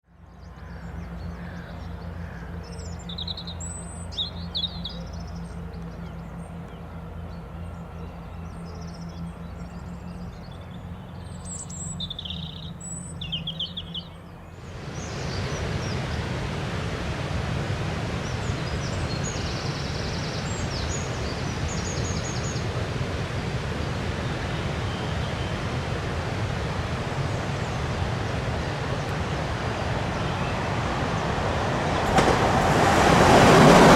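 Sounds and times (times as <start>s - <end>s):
low steady hum: 0.1s - 33.9s
steady rushing noise: 0.1s - 33.9s
small birds chirping: 0.2s - 16.4s, 18.1s - 32.4s.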